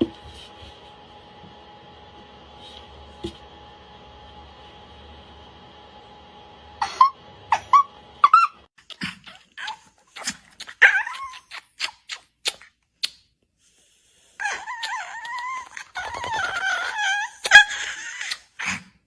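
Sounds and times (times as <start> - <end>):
high squeaky yips: 9.2 - 12.3, 14.4 - 18.8.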